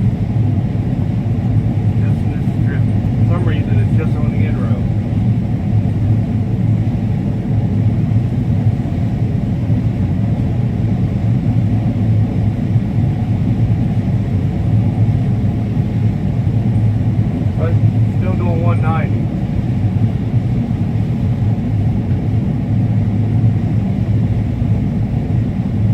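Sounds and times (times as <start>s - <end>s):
combine harvester rumbling: 0.0s - 25.9s.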